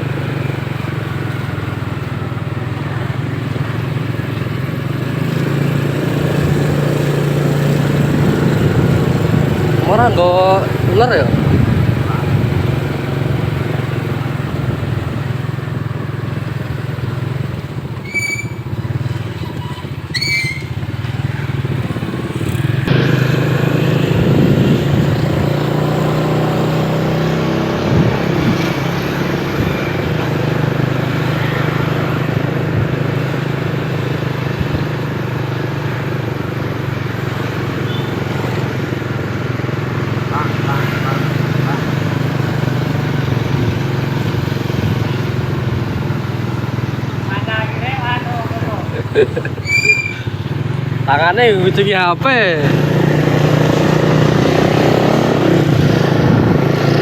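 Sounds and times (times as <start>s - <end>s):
motorcycle engine running: 0.0s - 57.0s
high-pitched chirps: 49.6s - 50.3s.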